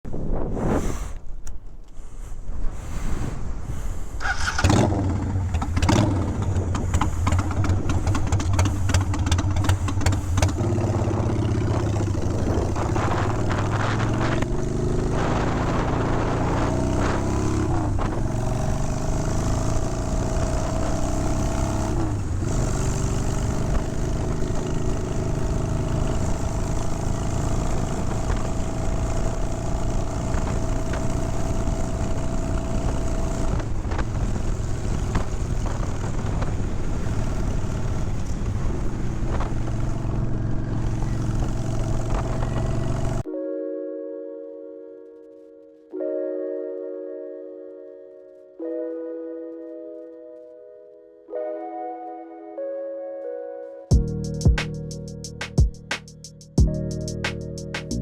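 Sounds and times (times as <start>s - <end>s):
motorcycle engine changing gears: 4.2s - 43.3s.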